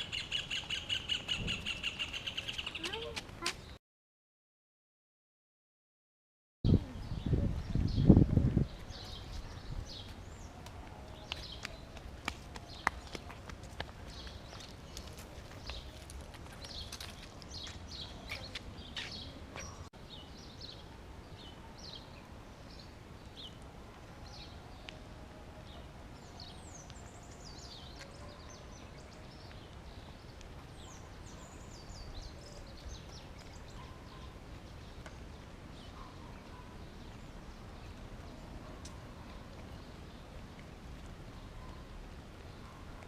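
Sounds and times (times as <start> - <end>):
wild birds chirping: 0.0 - 3.8, 25.7 - 43.0.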